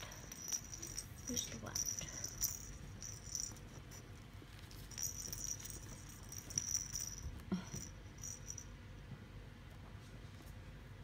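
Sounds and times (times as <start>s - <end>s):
jingling toy rattling: 0.0s - 8.8s.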